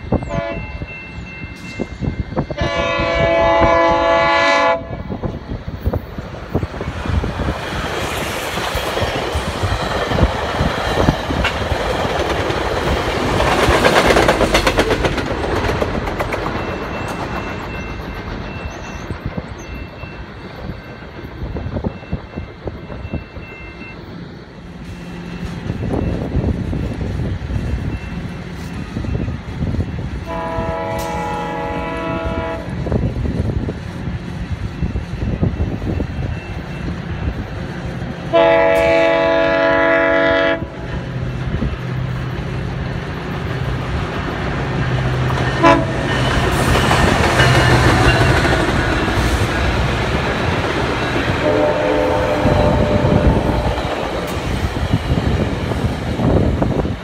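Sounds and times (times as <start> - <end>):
wheels rumbling on rail: 0.0 - 57.0
train air horn blasts: 0.3 - 0.8, 2.5 - 5.2, 30.2 - 32.8, 38.3 - 40.8, 45.6 - 46.7, 51.4 - 54.3.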